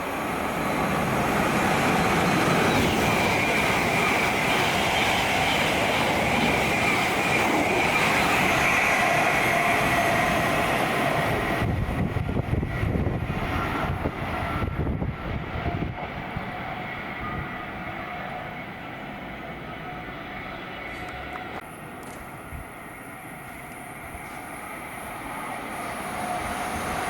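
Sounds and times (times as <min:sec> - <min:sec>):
train wheels rushing on rail: 0:00.0 - 0:27.0.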